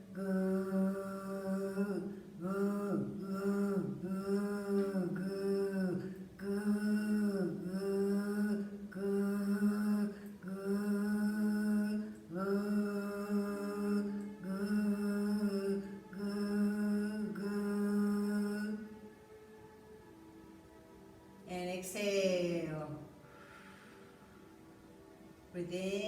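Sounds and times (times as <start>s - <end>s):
woman chanting low tone: 0.0s - 18.9s, 25.6s - 26.0s
short breaths: 23.2s - 24.5s.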